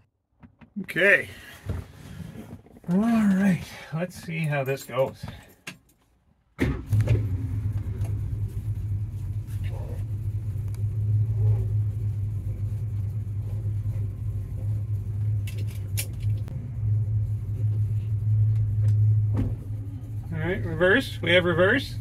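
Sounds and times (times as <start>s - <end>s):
car engine idling: 6.7s - 22.0s.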